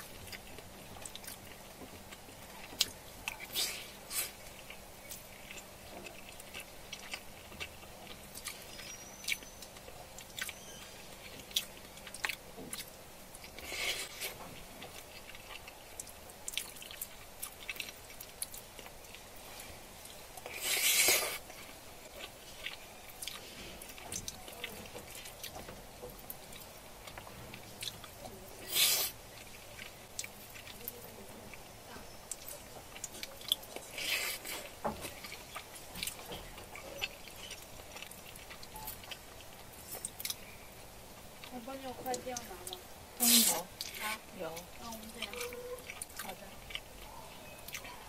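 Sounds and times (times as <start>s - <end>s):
person chewing: 0.0s - 41.5s, 43.2s - 48.0s.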